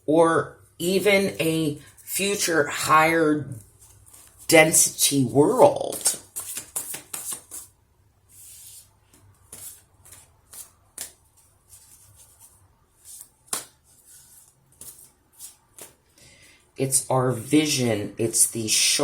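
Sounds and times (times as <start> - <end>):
cards shuffling: 3.8 - 7.7, 8.4 - 16.1.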